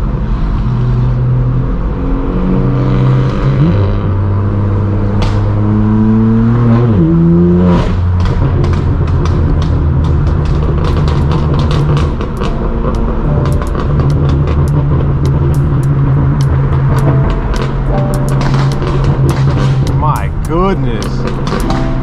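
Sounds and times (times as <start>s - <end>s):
car engine accelerating hard: 0.0s - 22.0s
exhaust pops and crackles: 5.2s - 5.6s, 7.8s - 22.0s.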